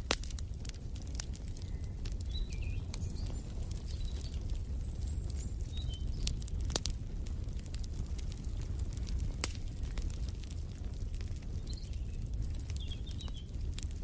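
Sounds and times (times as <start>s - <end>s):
wood fire crackling: 0.0s - 14.0s
faint bird chirps: 1.6s - 6.2s.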